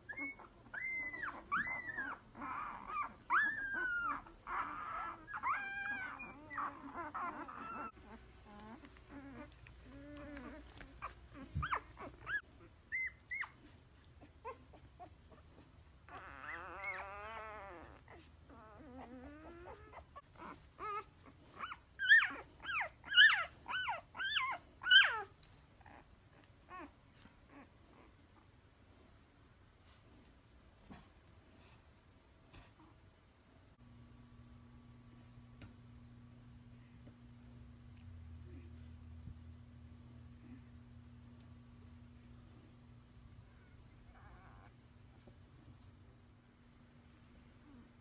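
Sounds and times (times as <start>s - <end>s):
puppies whimpering and whining: 0.0s - 28.5s, 43.4s - 45.4s
puppies yipping: 0.1s - 15.4s, 16.1s - 18.2s, 18.8s - 25.3s.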